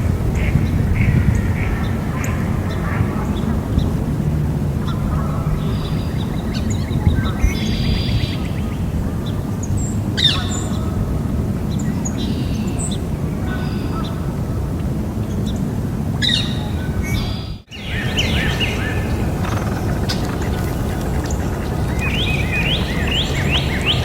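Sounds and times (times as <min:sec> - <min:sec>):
birds chirping and calling: 0:00.0 - 0:04.1, 0:04.8 - 0:14.3, 0:16.2 - 0:24.0
low background rumble: 0:00.0 - 0:24.0
bird trill: 0:04.8 - 0:08.8, 0:16.2 - 0:24.0.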